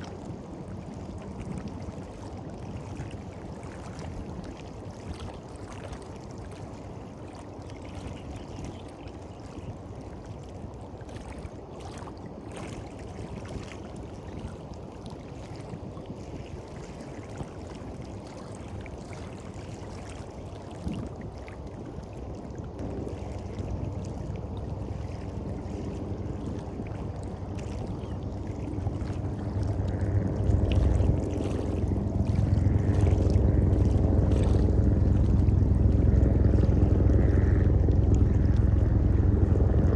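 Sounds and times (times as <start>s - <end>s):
low engine drone: 17.8s - 39.9s.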